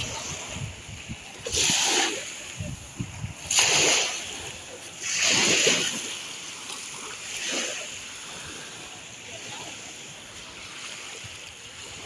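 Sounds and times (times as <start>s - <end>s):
small waves washing ashore: 0.0s - 12.0s.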